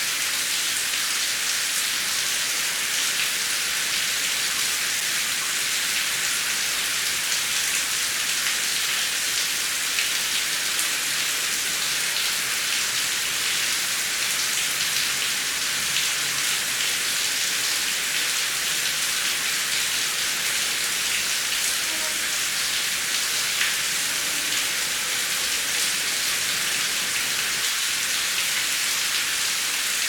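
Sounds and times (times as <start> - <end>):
heavy rain hissing: 15.1 - 28.8.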